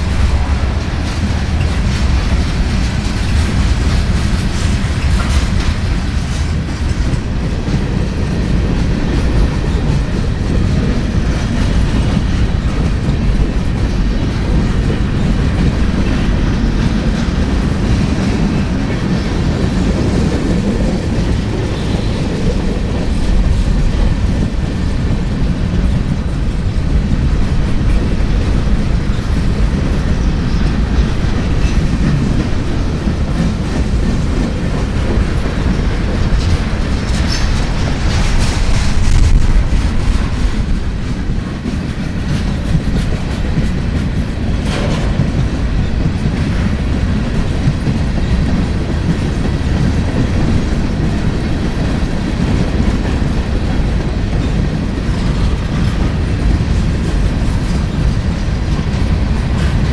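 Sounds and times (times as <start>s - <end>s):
freight train rumbling on rails: 0.0s - 59.9s.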